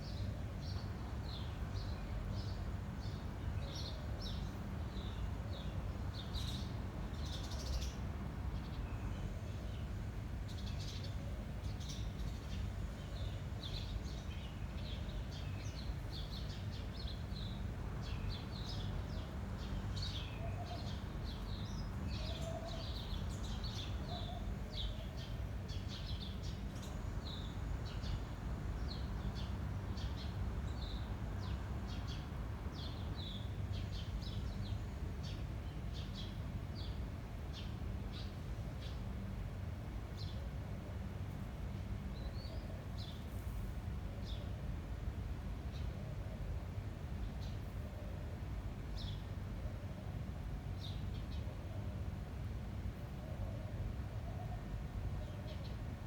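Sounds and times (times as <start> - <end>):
low rumble of wind: 0.0 - 56.0.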